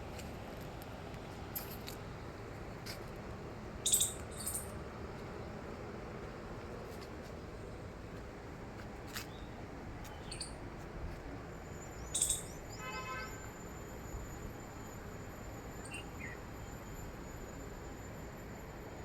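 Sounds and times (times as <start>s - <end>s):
birds chirping: 11.9s - 13.1s
rapid buzzy bird trill: 12.0s - 13.4s.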